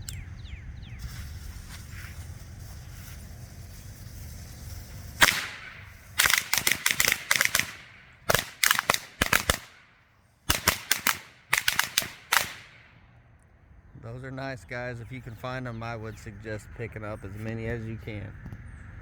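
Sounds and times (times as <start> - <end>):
firecrackers banging: 1.0 - 9.9, 10.5 - 13.0.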